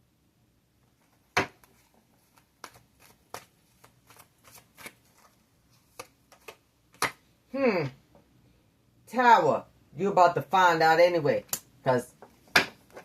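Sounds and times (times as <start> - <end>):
cards flicking and tapping: 1.3 - 7.3.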